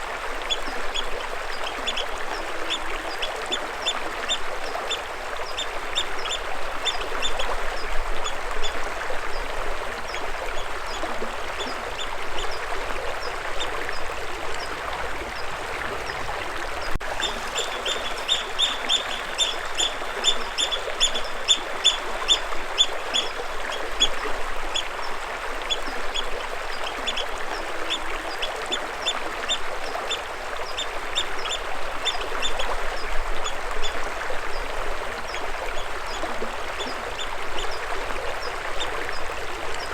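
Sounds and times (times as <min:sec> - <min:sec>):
running water rushing: 0:00.0 - 0:39.9
birds chirping: 0:16.8 - 0:23.8.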